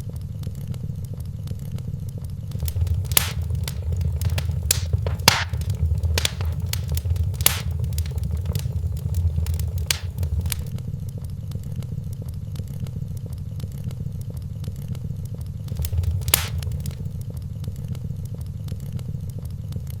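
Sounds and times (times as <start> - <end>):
fire crackling and popping: 2.5 - 10.7, 15.7 - 17.1
fire flames rumbling: 2.5 - 10.7, 15.7 - 17.1.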